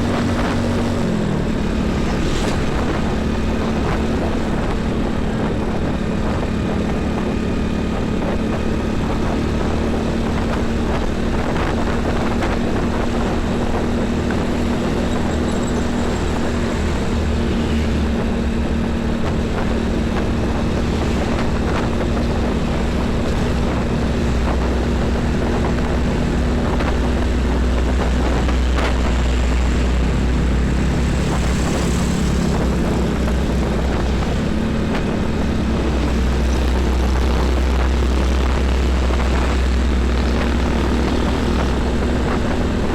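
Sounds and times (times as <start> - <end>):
diesel trucks on highway: 0.0 - 42.9.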